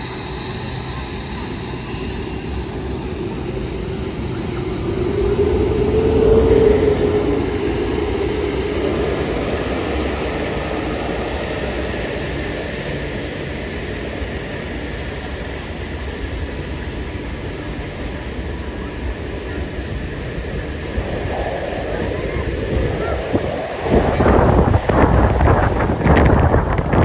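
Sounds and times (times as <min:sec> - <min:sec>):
jet plane passing: 0:00.0 - 0:27.0
wake turbulence rumbling whoosh: 0:02.8 - 0:10.7, 0:20.6 - 0:27.0.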